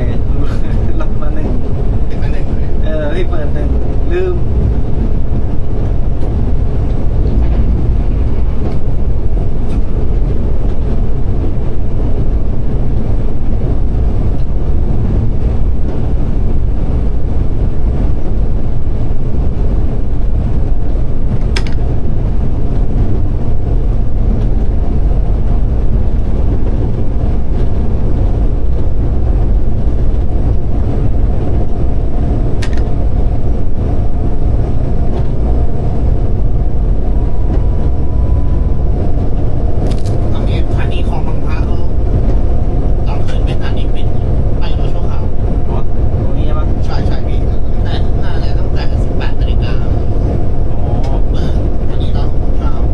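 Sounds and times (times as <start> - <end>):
diesel train rumbling: 0.0 - 52.9
sharp clicks: 32.6 - 32.9.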